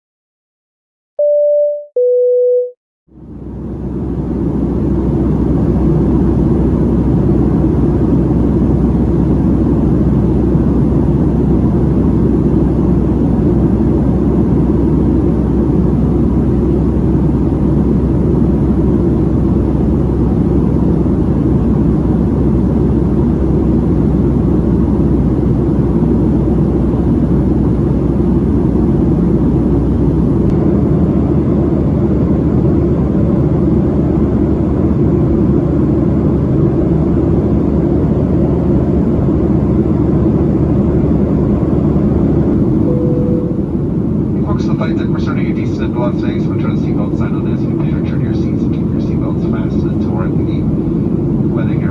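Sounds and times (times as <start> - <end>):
two-note high-low chime: 1.2 - 2.7, 42.8 - 43.8
aircraft cabin rumble and hiss: 3.3 - 51.9.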